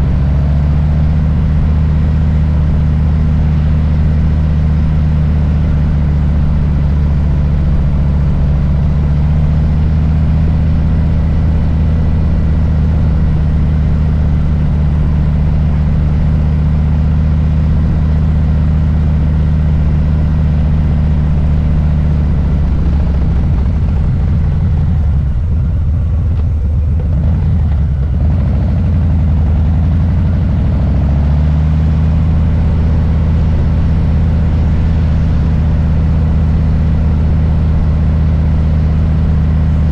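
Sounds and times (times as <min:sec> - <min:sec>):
motorcycle engine idling: 0:00.0 - 0:30.8.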